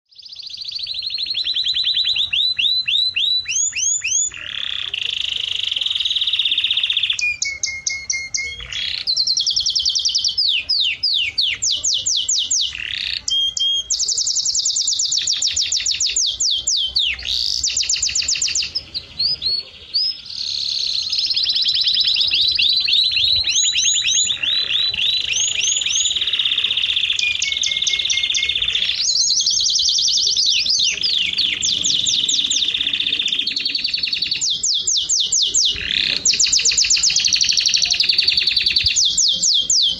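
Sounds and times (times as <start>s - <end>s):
songbird singing fast trills: 0.0s - 39.9s.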